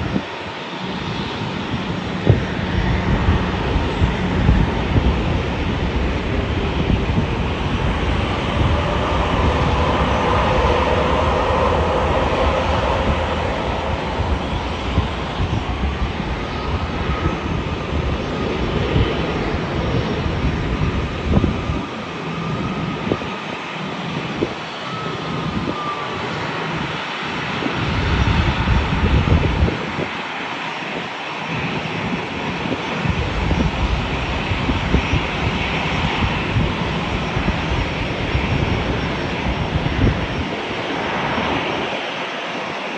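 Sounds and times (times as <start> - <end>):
jet engines running: 0.6 - 19.0.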